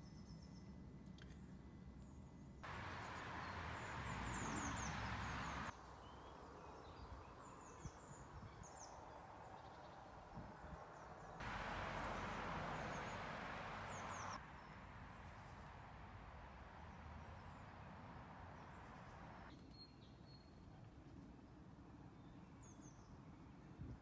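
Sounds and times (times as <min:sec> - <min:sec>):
outdoor hiss: 0:02.6 - 0:05.7, 0:11.4 - 0:19.5
small birds singing: 0:02.6 - 0:09.0, 0:11.2 - 0:14.4.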